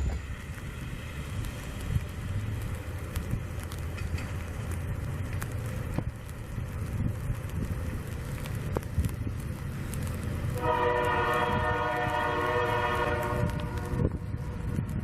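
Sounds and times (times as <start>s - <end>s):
steady low rumble: 0.0s - 15.0s
locomotive air horn blast: 10.6s - 14.7s.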